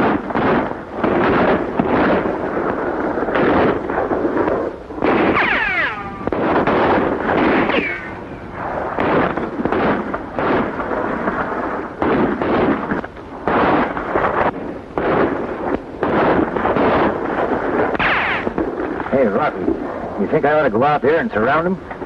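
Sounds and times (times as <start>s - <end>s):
pistol and rifle shots: 0.0s - 19.1s
ricochet whines: 5.0s - 10.9s, 17.8s - 18.6s.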